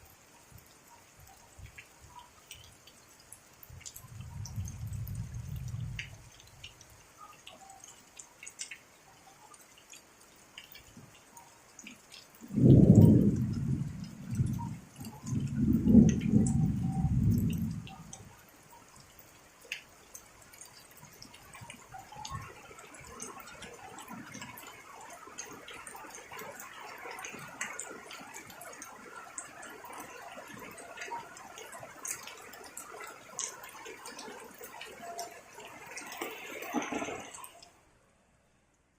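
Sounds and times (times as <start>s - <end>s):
light rain dripping: 0.0s - 38.9s
thunder rumble: 3.8s - 6.6s, 12.4s - 18.5s.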